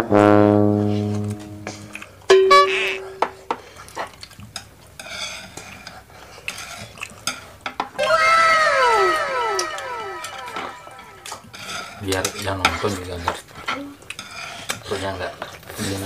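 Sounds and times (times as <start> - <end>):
horn-like held note: 0.2 - 2.8, 8.0 - 11.4
fork and chopsticks scraping board: 5.0 - 5.9, 11.5 - 15.5
whistle-like tones sliding down: 8.0 - 11.5.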